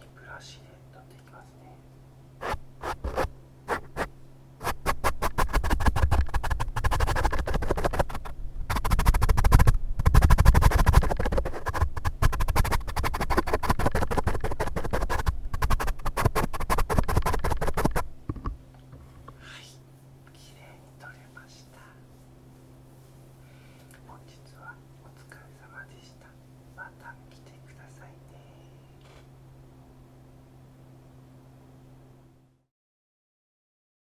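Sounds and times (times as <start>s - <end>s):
rapid scratching strokes: 2.4s - 18.1s.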